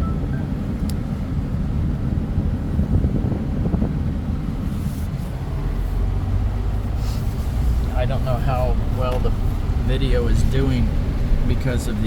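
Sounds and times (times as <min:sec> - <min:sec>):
vehicle rumbling: 0:00.0 - 0:12.0.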